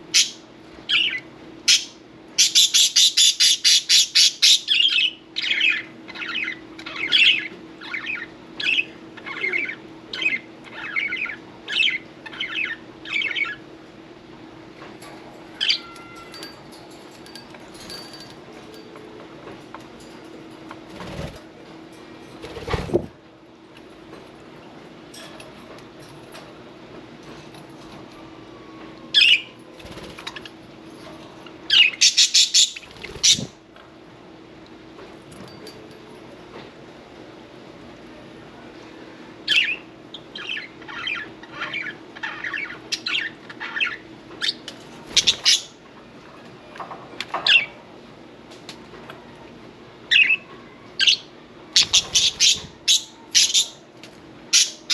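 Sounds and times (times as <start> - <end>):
wings fluttering: 20.8 - 21.5, 22.4 - 23.1, 29.7 - 30.6, 32.8 - 33.6
budgerigars chirping: 31.7 - 33.5, 51.8 - 53.8.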